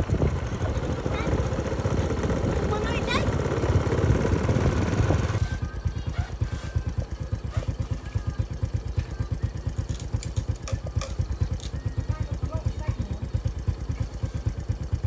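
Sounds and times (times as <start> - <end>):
rush of riding noise: 0.0 - 8.1
motorbike engine idling: 0.0 - 15.0.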